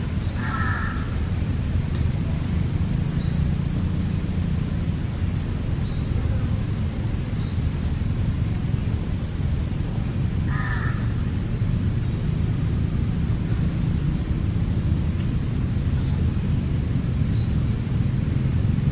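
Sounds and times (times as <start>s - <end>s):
steady low rumble: 0.0s - 18.9s
crow cawing: 0.2s - 1.4s, 10.4s - 11.4s.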